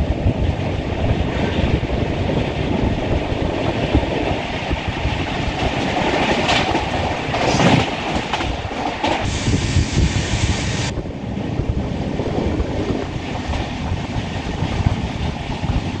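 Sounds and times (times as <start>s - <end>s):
train rumble and air rush: 0.0s - 16.0s
wheels clacking over rail joints: 1.7s - 9.3s
high hiss: 9.2s - 10.9s.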